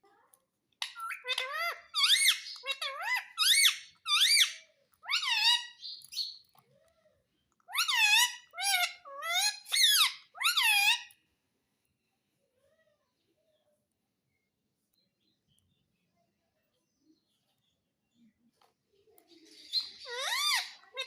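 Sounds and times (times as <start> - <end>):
parrot calling: 0.8 - 6.4, 7.7 - 11.1, 19.6 - 21.0.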